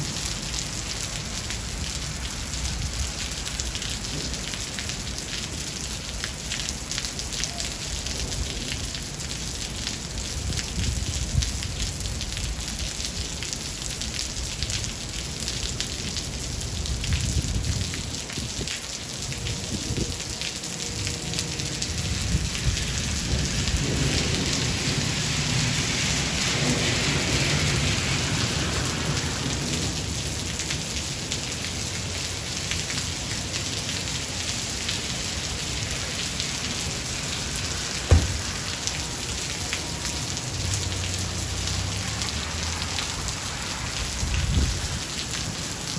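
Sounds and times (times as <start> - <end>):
steady rain: 0.0 - 45.9
low rolling thunder: 21.8 - 30.4, 37.3 - 39.3
sharp thunder crack: 38.0 - 38.8.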